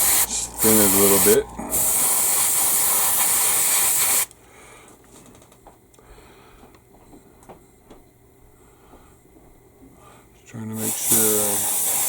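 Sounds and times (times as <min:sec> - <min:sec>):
airbrush spraying hiss: 0:00.0 - 0:04.3, 0:10.8 - 0:12.0.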